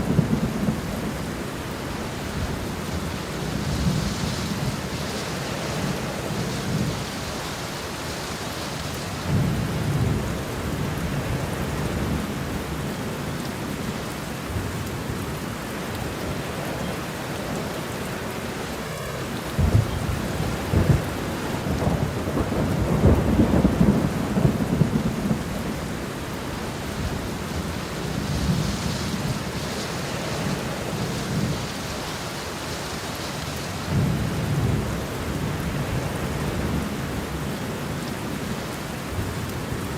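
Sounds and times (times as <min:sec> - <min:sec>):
steady rain falling: 0:00.0 - 0:39.9
thunder rumbling: 0:14.5 - 0:38.4.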